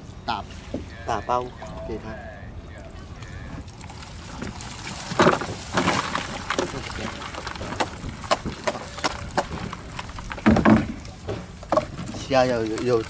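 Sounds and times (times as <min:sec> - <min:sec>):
plastic bag crackling: 0:03.0 - 0:13.0.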